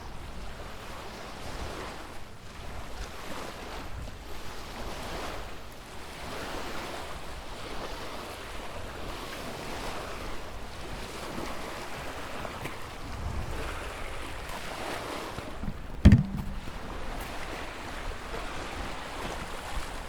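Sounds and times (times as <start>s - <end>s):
ocean waves breaking: 9.0s - 20.0s.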